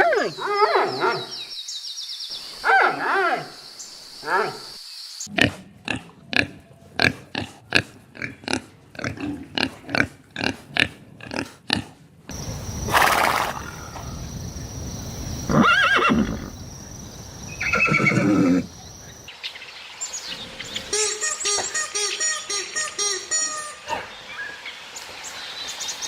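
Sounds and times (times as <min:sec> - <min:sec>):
different farm animal calling: 0:17.5 - 0:18.8.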